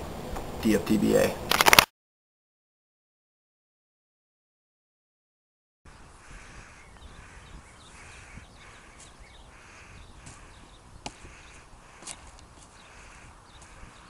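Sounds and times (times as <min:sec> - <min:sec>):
bird calling: 0:05.9 - 0:14.0.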